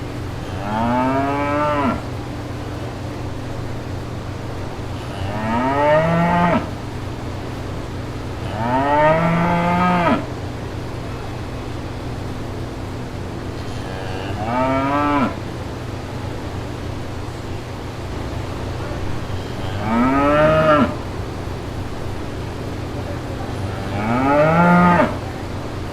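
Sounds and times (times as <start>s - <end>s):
low background rumble: 0.0s - 25.9s
cow mooing: 0.4s - 2.2s, 4.9s - 6.8s, 8.4s - 10.3s, 13.6s - 15.4s, 19.1s - 21.1s, 23.6s - 25.3s.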